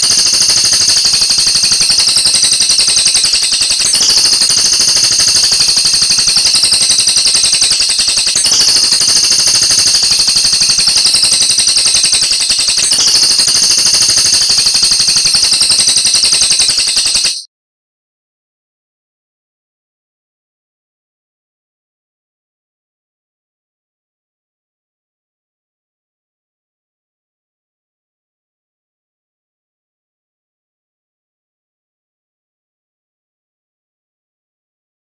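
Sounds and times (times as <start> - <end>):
bird rattling trill: 0.0 - 17.4.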